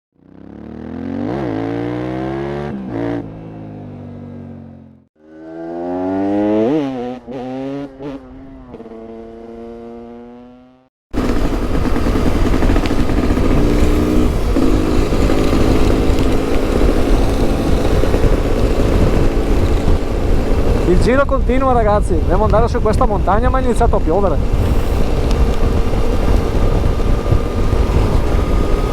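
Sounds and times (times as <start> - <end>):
motorcycle engine revving: 0.2 - 28.9
wind noise: 11.2 - 28.9.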